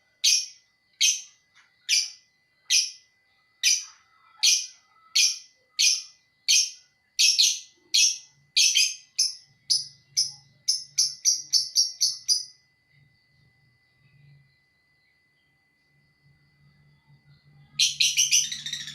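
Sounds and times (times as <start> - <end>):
faint steady high tone: 0.0 - 18.9
lovebird harsh shrill chirps: 17.8 - 18.9.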